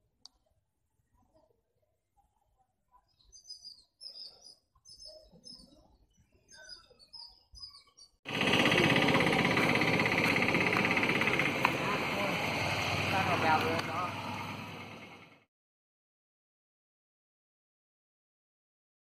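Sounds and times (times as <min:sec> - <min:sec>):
small birds chirping: 0:02.8 - 0:09.2
loud steady noise: 0:08.3 - 0:15.4.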